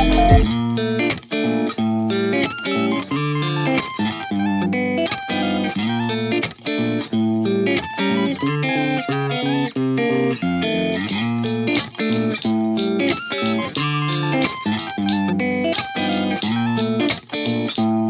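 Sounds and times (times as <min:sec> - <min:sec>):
bass line: 0:00.0 - 0:00.6, 0:10.4 - 0:18.0
electric guitar music: 0:00.0 - 0:18.0.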